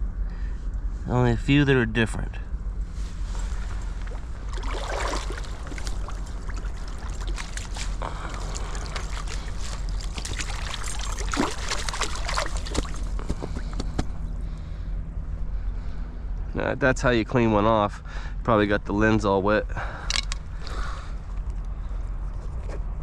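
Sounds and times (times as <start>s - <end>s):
low rush of background noise: 0.0s - 23.0s
water splashing and dripping: 3.5s - 13.7s.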